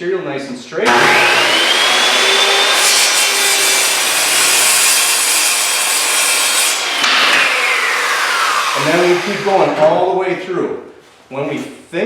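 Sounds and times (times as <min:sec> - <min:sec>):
saw motor winding down: 0:00.9 - 0:09.8
circular saw cutting plywood: 0:00.9 - 0:10.0.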